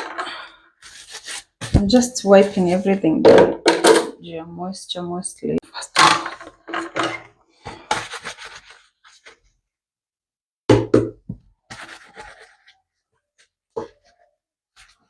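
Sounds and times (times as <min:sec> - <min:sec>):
kitchen items clattering: 0:01.6 - 0:04.3, 0:05.9 - 0:08.6.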